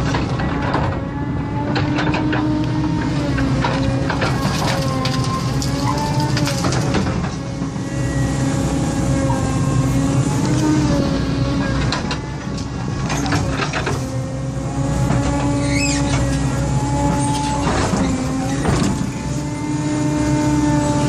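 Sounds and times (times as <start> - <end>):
excavator diesel engine running: 0.0 - 21.0
short high squeak: 15.6 - 16.3.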